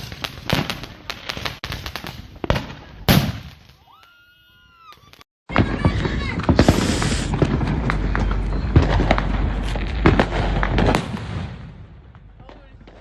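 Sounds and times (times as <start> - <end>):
fireworks cracking and popping: 0.0 - 13.0.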